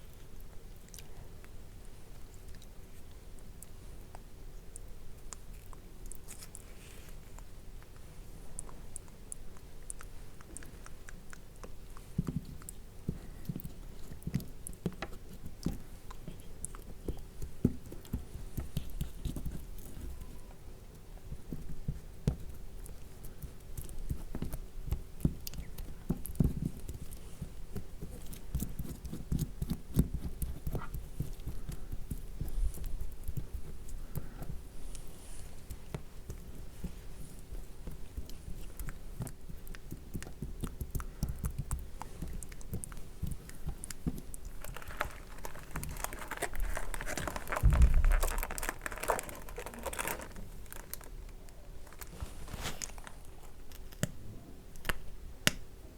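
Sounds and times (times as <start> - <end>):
fingertips patting damp sheet mask: 35.6 - 51.2.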